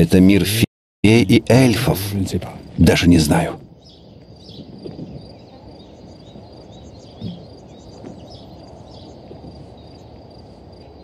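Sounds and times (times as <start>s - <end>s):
insects chirping: 1.1s - 11.0s
small birds chirping: 1.2s - 11.0s
soft thump: 7.2s - 8.2s.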